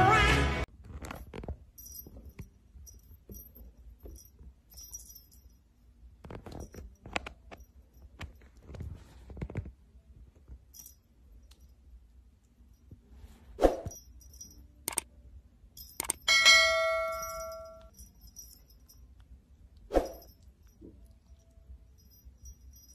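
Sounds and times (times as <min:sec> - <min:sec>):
small bell jingling: 0:01.7 - 0:08.6, 0:13.9 - 0:14.9, 0:15.7 - 0:19.2, 0:20.0 - 0:22.9.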